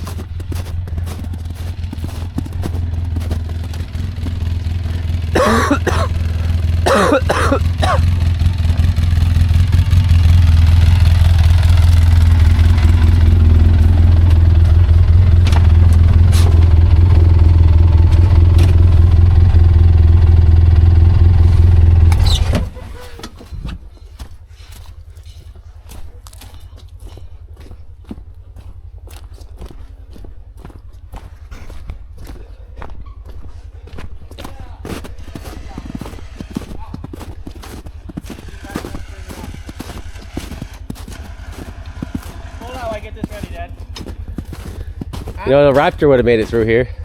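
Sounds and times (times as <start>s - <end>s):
engine revving hard: 0.0s - 22.8s, 35.0s - 47.0s.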